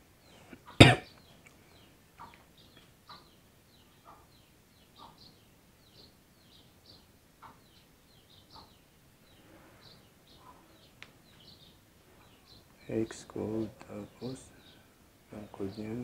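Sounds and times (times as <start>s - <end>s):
faint small birds chirping: 0.0s - 16.0s.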